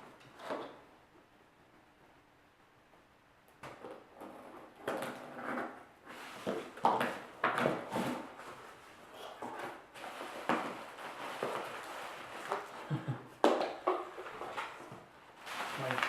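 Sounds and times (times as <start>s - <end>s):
cardboard and paper rustling: 6.1s - 12.9s, 13.9s - 16.0s.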